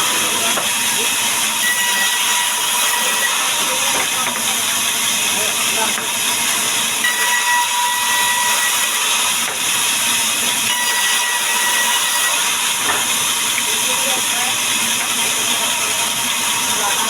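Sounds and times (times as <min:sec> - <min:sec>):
power saw cutting wood: 0:00.0 - 0:17.0.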